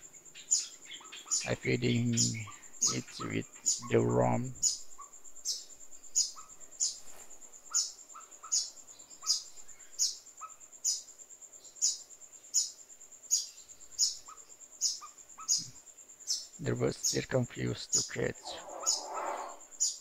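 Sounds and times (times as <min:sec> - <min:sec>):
young bird begging chirps: 0:18.4 - 0:20.0.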